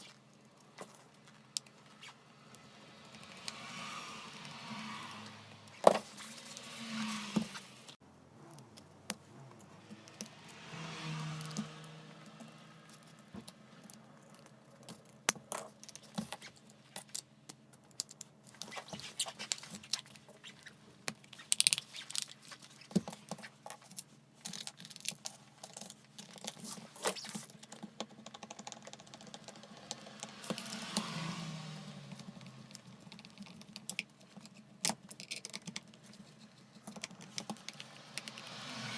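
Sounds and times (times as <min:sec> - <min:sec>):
plastic and metal parts clicking: 0:32.3 - 0:38.4.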